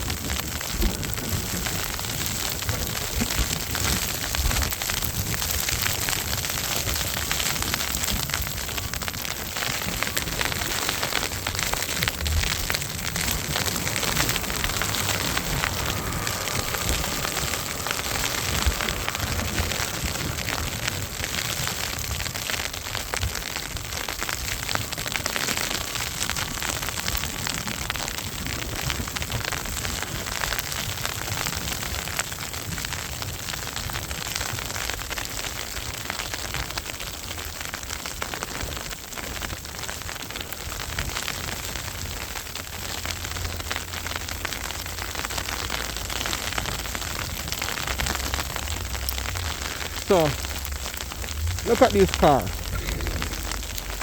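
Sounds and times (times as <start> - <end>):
wind buffeting microphone: 0.0 - 31.0, 41.9 - 54.0
crackling hiss: 0.0 - 54.0.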